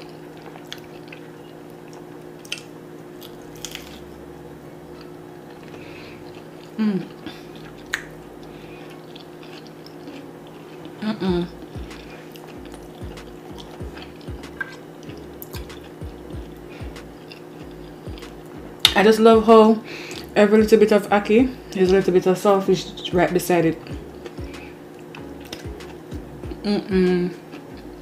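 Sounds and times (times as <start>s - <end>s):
person chewing with crunches: 0.0s - 4.3s, 5.0s - 19.0s, 20.0s - 20.4s, 23.8s - 26.6s
steady low hum: 0.0s - 28.0s
person humming mm: 6.8s - 7.6s, 11.0s - 12.3s, 26.6s - 27.4s.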